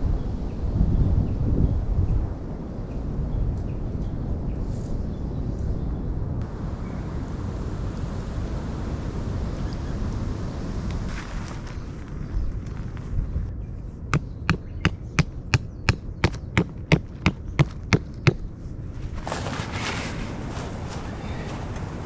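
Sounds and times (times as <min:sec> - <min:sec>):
rustling: 0:18.7 - 0:22.0.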